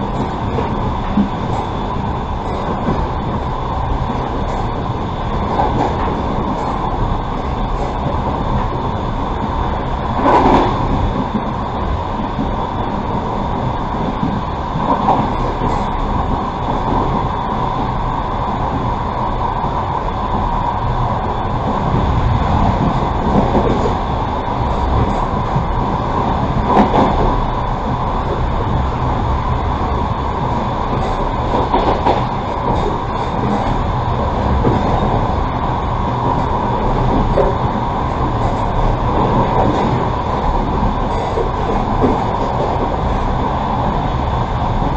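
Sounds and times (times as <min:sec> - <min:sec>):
train wheels rumbling on rail: 0:00.0 - 0:44.9.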